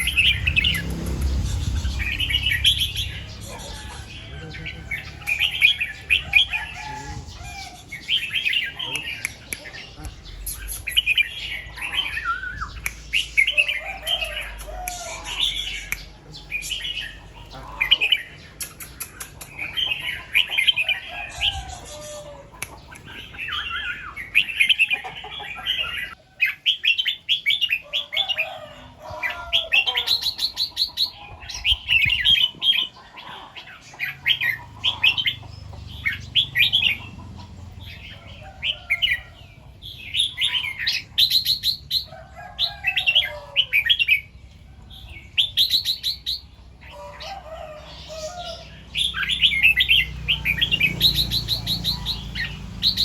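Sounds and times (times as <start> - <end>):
bulbul singing: 0.0 - 27.8, 47.8 - 53.0.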